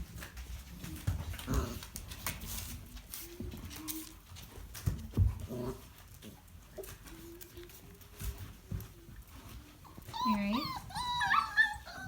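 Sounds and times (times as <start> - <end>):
puppies whimpering: 10.0 - 12.0.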